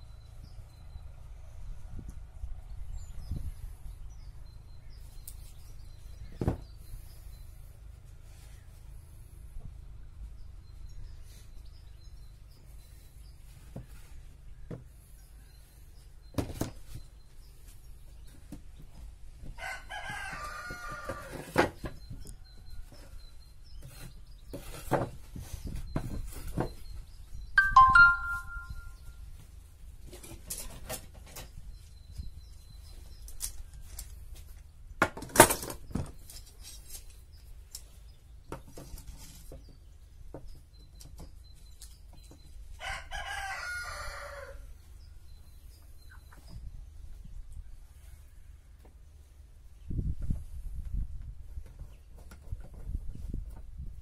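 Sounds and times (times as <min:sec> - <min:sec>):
rooster crowing: 0:19.6 - 0:21.4, 0:42.8 - 0:44.6.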